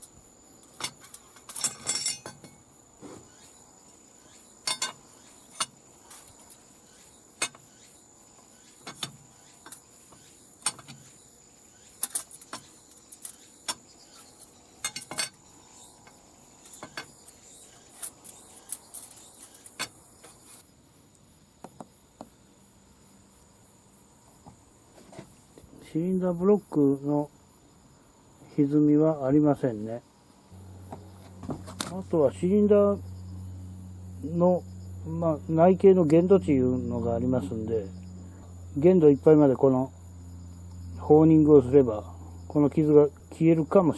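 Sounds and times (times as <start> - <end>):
metal tools clinking on metal: 0.6 - 2.6, 4.6 - 5.8, 12.0 - 15.4.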